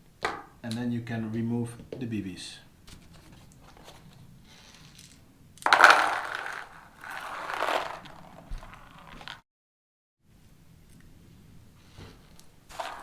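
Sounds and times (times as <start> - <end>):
plastic scraping and rattling bbs: 2.9 - 9.4, 12.7 - 13.0.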